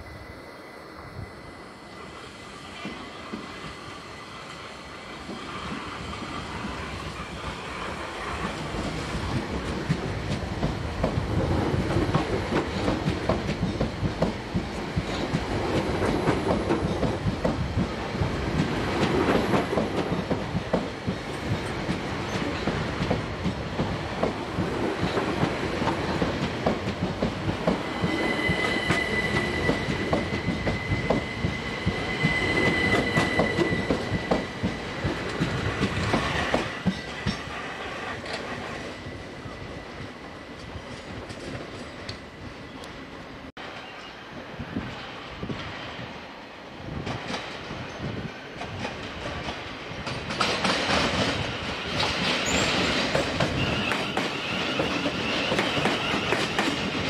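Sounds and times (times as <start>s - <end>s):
train rumble: 4.8s - 43.8s
high-pitched wheel squeal: 27.8s - 35.0s.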